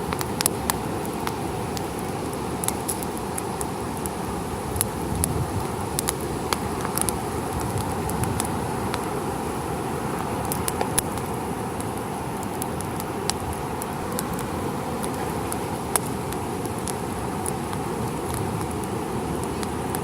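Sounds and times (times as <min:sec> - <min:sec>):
campfire crackling and popping: 0:00.0 - 0:20.0
ocean surf: 0:00.0 - 0:20.0.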